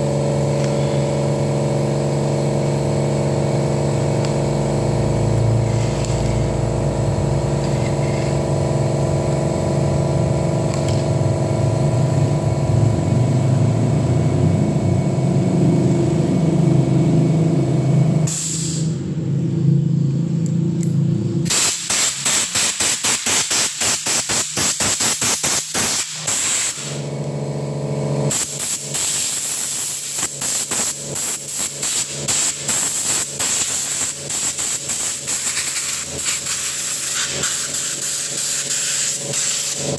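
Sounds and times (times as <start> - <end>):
air compressor motor humming: 0.0 - 39.9
blow gun hissing air: 18.3 - 19.0, 21.5 - 27.1, 28.3 - 39.9.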